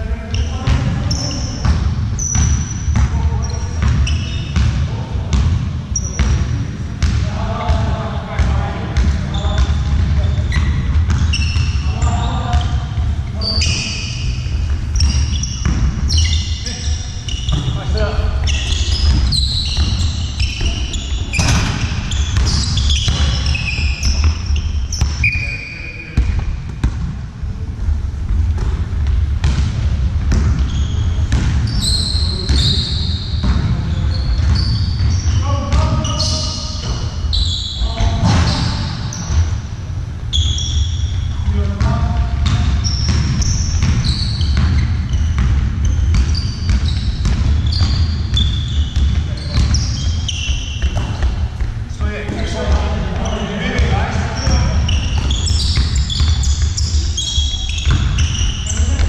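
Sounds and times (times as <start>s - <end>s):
trainers squeaking on court floor: 0.0s - 27.0s, 28.5s - 59.0s
ball bouncing: 1.6s - 13.8s, 14.4s - 25.4s, 28.3s - 32.8s, 33.4s - 37.2s, 41.8s - 59.0s
steady low hum: 26.0s - 59.0s.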